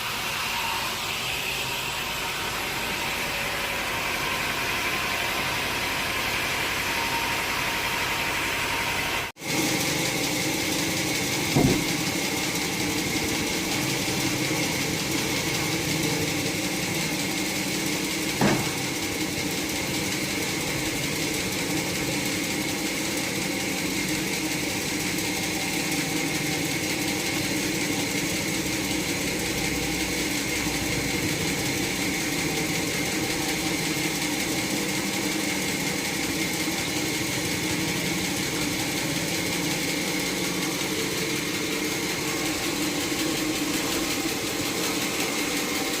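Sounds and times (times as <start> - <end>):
sawmill machinery humming: 0.0 - 46.0
sharp knock: 11.6 - 12.0, 18.4 - 18.9.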